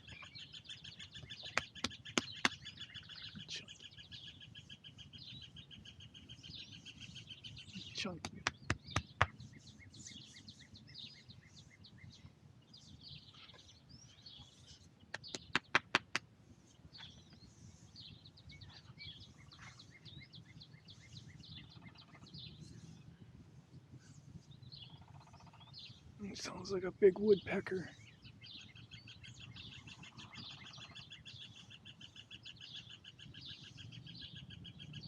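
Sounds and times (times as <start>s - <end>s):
small birds chirping: 0.0s - 35.0s
woodpecker pecking on wood: 1.5s - 2.6s, 8.2s - 9.4s.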